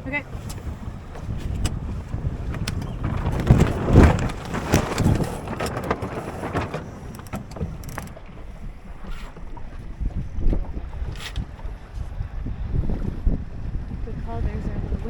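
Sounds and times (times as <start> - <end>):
wind buffeting microphone: 0.0 - 15.0
sharp clicks and knocks: 0.4 - 9.4.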